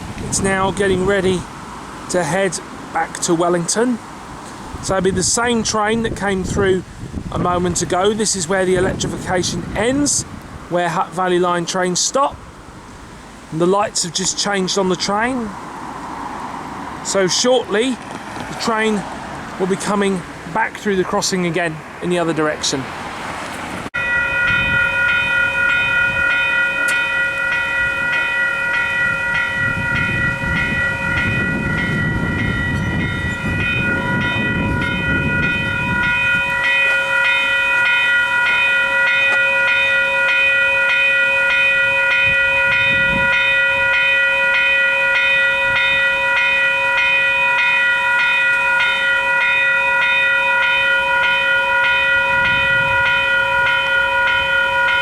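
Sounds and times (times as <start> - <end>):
electronic level crossing bells: 24.0 - 55.0.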